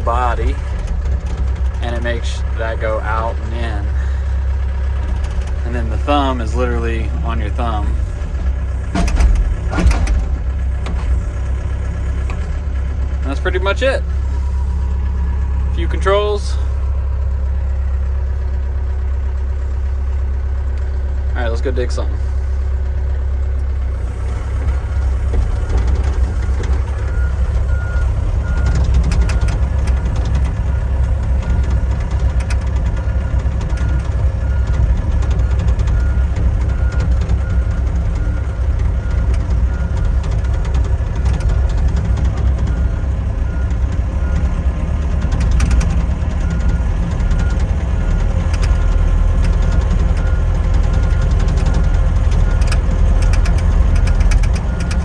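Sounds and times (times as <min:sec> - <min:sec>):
diesel engine humming: 0:00.0 - 0:55.0
travel alarm beeping: 0:24.0 - 0:34.7, 0:45.6 - 0:55.0.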